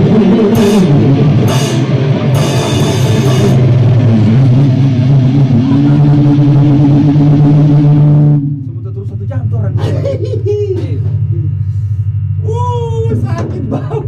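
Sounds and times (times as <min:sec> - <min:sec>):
cymbal crashes: 0:00.0 - 0:08.5
electric guitar held chord: 0:00.0 - 0:08.5
rock band rehearsing: 0:00.0 - 0:08.7
bass note: 0:00.0 - 0:09.8.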